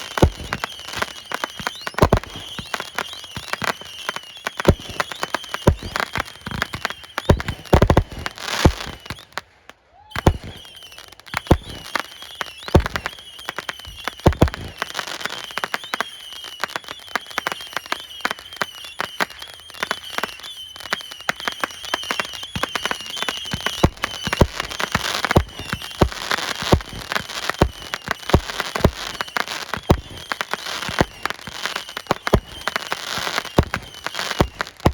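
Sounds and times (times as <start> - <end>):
fireworks booms: 0.0 - 2.8, 4.6 - 9.2, 10.2 - 10.8, 11.4 - 12.0, 12.7 - 13.1, 13.9 - 14.8, 23.4 - 34.9
fireworks bangs and crackles: 0.0 - 34.9.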